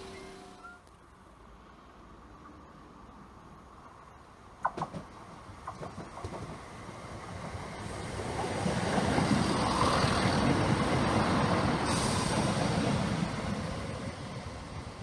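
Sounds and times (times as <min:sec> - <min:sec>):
diesel train passing: 0:00.0 - 0:15.0
sharp hiss: 0:11.7 - 0:13.6.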